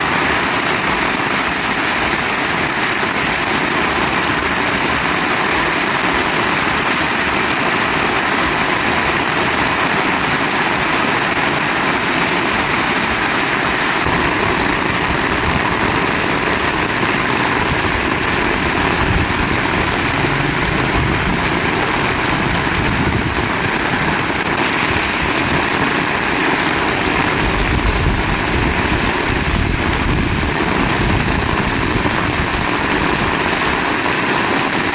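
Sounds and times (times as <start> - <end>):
heavy rain: 0.0 - 34.9
low rumbling wind gusts: 13.9 - 33.6.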